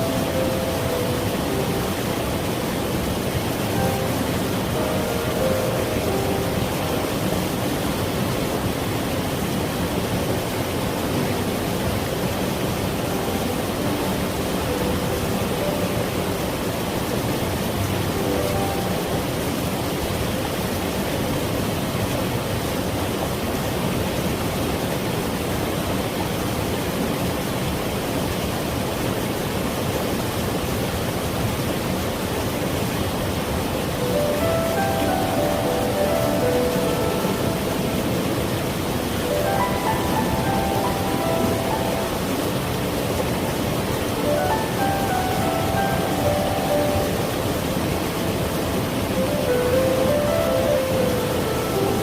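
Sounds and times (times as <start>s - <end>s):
stream water flowing: 0.0s - 52.0s.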